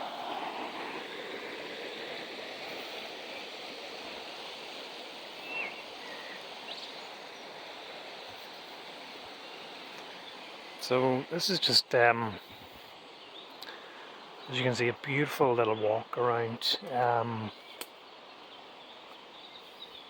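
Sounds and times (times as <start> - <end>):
river rushing: 0.0 - 11.8.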